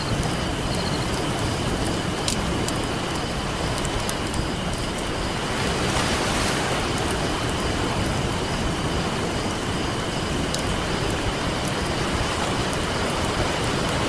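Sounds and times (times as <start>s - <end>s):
campfire crackling and popping: 0.0s - 14.0s
ocean surf washing: 0.0s - 14.0s.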